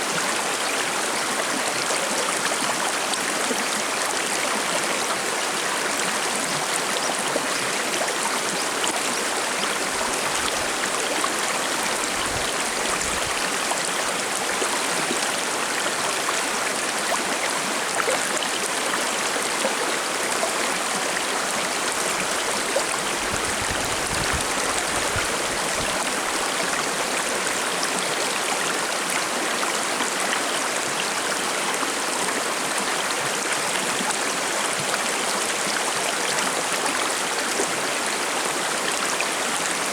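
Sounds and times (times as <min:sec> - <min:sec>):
river babbling over rocks: 0:00.1 - 0:39.9.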